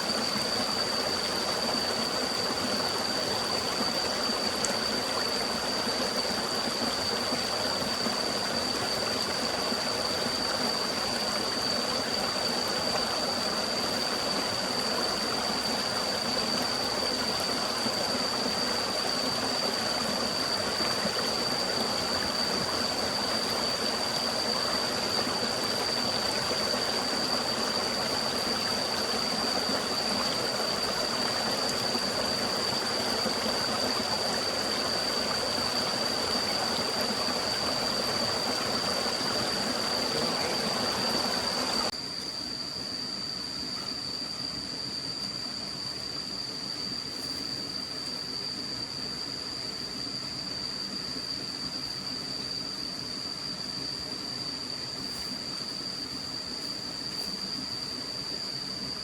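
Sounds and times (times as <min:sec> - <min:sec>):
stream running: 0:00.0 - 0:41.9.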